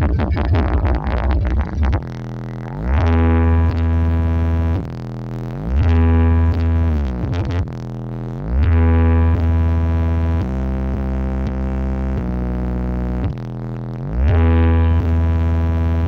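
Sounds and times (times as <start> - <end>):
electronic synthesizer music: 0.0 - 7.9.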